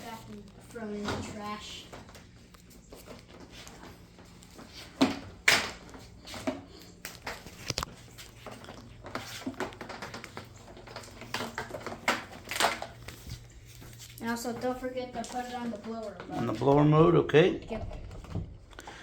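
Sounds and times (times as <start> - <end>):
plastic parts clicking and clattering: 4.6 - 13.4.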